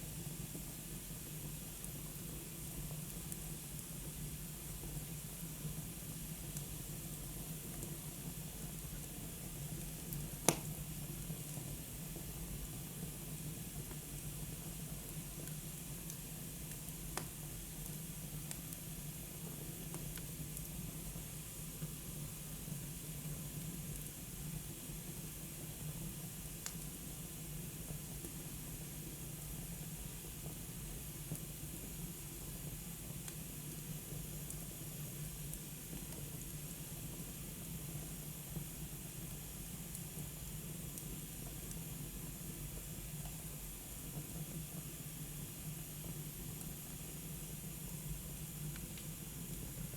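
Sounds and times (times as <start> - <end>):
wood fire hissing: 0.0 - 49.9
fire crackling pops: 10.1 - 10.7.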